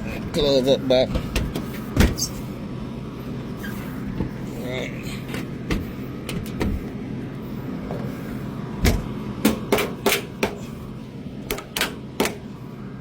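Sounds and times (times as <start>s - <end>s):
steady low hum: 0.0s - 13.0s
sharp metal knocks and clicks: 8.8s - 10.6s, 11.5s - 12.4s.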